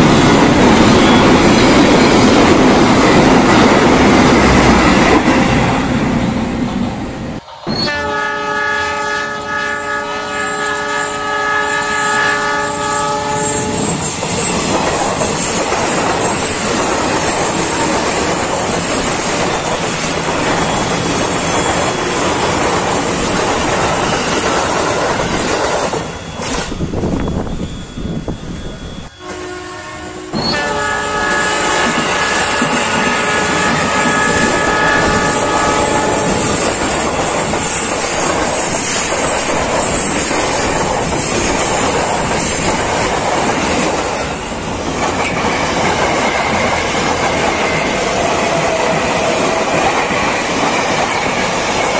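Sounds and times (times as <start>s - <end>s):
electronic horn tone: 7.4s - 14.0s, 27.2s - 36.7s.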